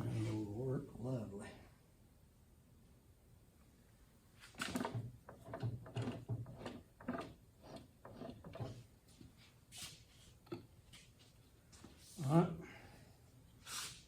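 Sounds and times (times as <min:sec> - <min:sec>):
tools and parts knocking: 0:04.6 - 0:08.8.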